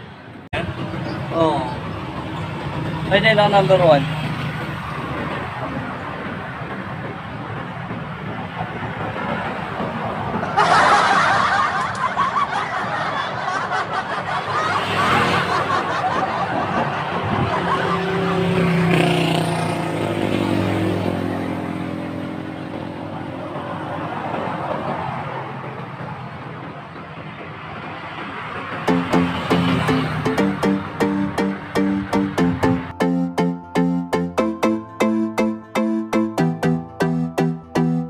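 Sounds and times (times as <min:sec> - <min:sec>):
engine hum passing by: 0:00.0 - 0:38.0
motor vehicles passing: 0:00.0 - 0:38.0
road noise: 0:00.0 - 0:38.0
wind noise: 0:04.3 - 0:14.0, 0:15.2 - 0:19.2.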